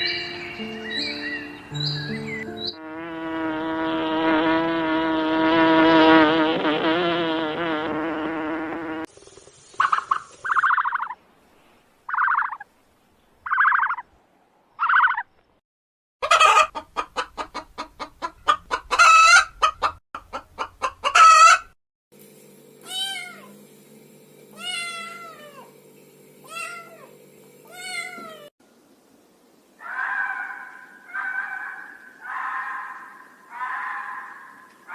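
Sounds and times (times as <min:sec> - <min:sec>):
hen clucking and squawking: 0:09.8 - 0:11.2, 0:12.1 - 0:12.7, 0:13.5 - 0:14.0, 0:14.8 - 0:15.3, 0:16.2 - 0:21.7, 0:29.8 - 0:34.9
cat meowing: 0:24.6 - 0:25.6, 0:26.5 - 0:27.0, 0:27.7 - 0:28.5.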